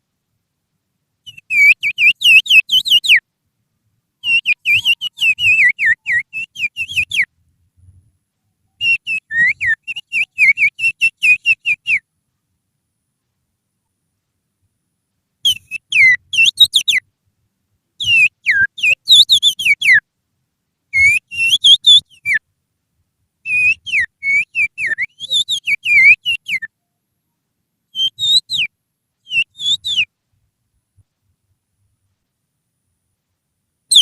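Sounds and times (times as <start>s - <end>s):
finger whistle bird call: 1.3s - 3.2s, 4.2s - 7.3s, 8.8s - 12.0s, 15.4s - 17.0s, 18.0s - 20.0s, 20.9s - 22.4s, 23.4s - 26.7s, 27.9s - 30.1s.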